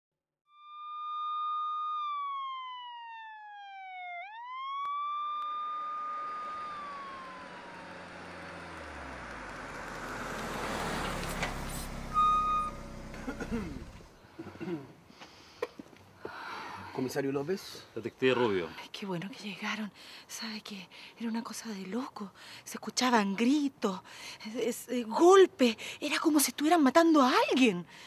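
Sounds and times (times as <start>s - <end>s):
police siren wailing: 0.6s - 11.0s
car engine and tyre noise: 5.0s - 14.2s.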